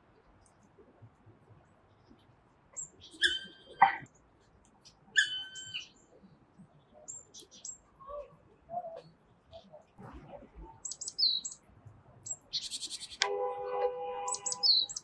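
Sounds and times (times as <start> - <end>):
small birds chirping: 0.1 - 15.0
woodpecker calling: 2.8 - 4.0, 14.2 - 15.0.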